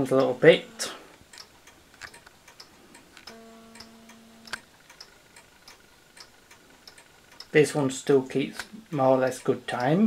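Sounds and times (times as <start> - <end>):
pendulum clocks ticking: 0.0 - 10.0
steady low hum: 0.0 - 10.0
sharp click: 1.3 - 7.6.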